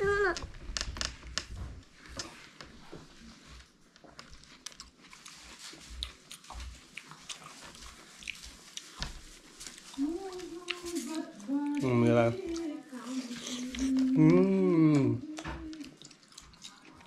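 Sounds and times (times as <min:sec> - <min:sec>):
chewing watermelon crunches: 0:04.2 - 0:17.0.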